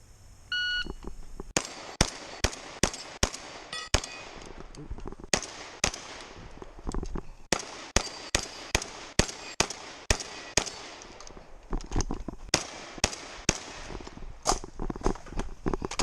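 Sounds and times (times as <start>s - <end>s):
shotgun shots: 1.6s - 4.5s, 5.3s - 6.5s, 7.5s - 11.2s, 12.5s - 14.6s.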